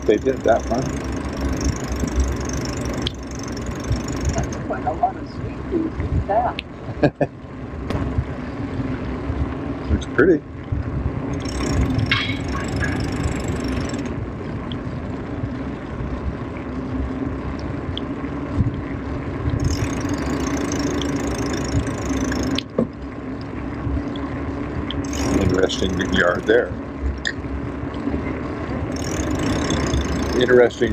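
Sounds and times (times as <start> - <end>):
wind buffeting microphone: 0.0 - 7.0, 7.7 - 22.3
faint steady hum: 0.0 - 30.9.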